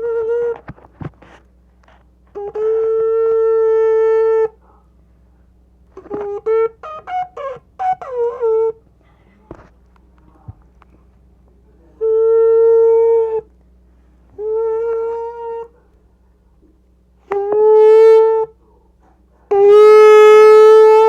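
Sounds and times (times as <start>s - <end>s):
shofar blasts: 17.3s - 18.5s, 19.5s - 21.0s.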